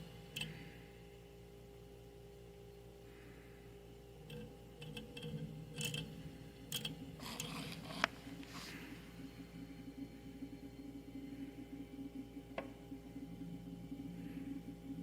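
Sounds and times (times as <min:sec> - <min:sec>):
fridge compressor humming: 0:00.0 - 0:15.0
clicking and rattling contacts: 0:04.2 - 0:08.2.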